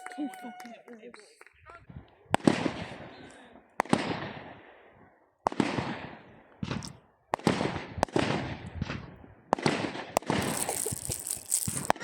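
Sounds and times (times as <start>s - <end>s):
fireworks bangs: 5.5s - 12.0s
fireworks crackle: 10.2s - 12.0s
hiss of fireworks bursts: 10.3s - 12.0s.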